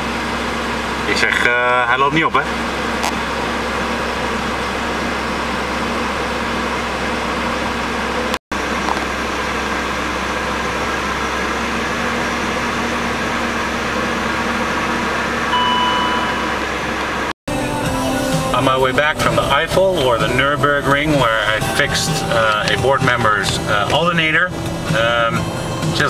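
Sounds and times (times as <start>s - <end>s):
car engine running steadily: 0.0s - 26.0s
thin high tone: 15.5s - 17.0s.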